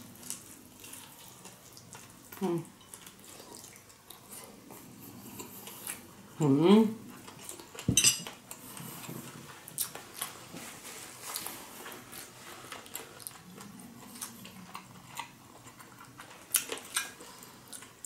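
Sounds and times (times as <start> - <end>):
crunching chewing: 7.2 - 10.4, 11.2 - 18.0.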